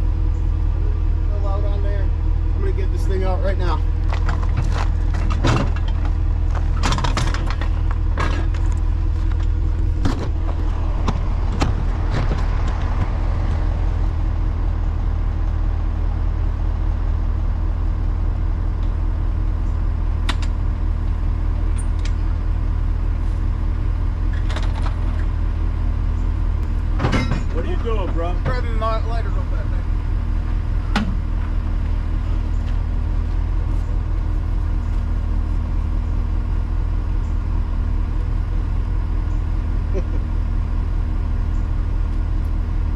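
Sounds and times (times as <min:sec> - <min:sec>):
truck engine idling: 0:00.0 - 0:42.9
sharp knocks and clanks: 0:04.1 - 0:13.2, 0:26.9 - 0:28.7.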